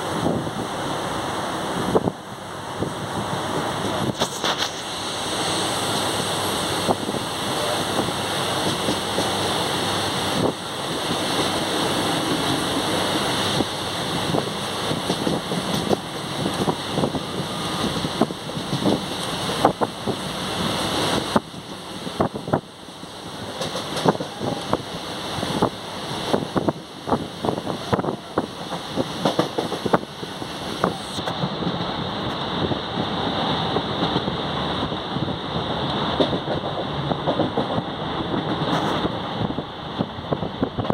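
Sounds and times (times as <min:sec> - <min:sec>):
train running rumble: 0:00.0 - 0:40.9
wind rushing at train window: 0:00.0 - 0:40.9
wheels clacking over rail joints: 0:06.8 - 0:24.8, 0:25.6 - 0:32.6, 0:33.6 - 0:39.5.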